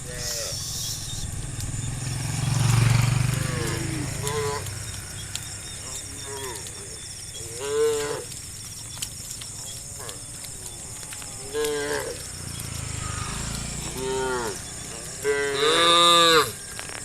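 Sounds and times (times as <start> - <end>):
cattle mooing: 2.2 - 4.8, 5.8 - 8.4, 9.9 - 16.6.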